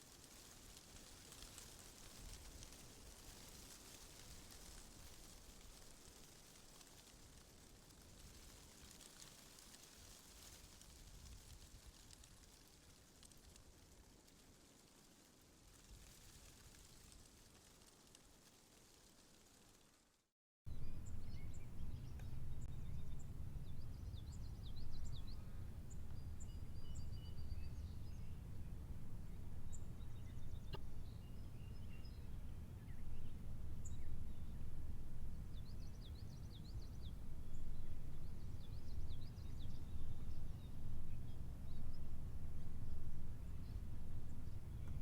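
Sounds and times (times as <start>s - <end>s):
low outdoor rumble: 20.7s - 45.0s
small birds chirping: 20.7s - 45.0s.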